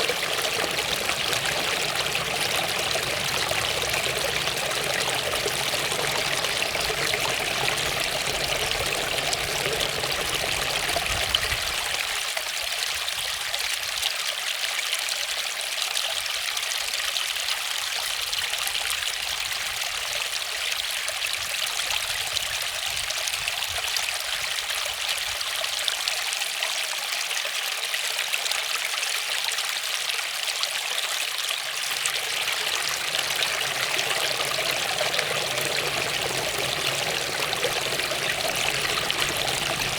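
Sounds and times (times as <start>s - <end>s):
waterfall splashing: 0.0s - 12.0s, 31.7s - 39.9s.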